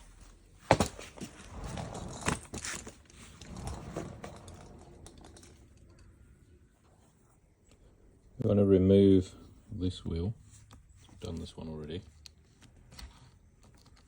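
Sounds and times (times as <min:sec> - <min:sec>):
clicks and rattling of handling: 0:02.1 - 0:06.2.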